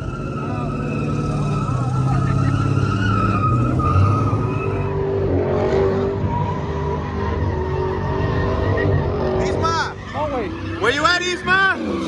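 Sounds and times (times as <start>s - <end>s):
car engine at high revs: 0.0s - 12.0s
tyres squealing: 6.2s - 12.0s.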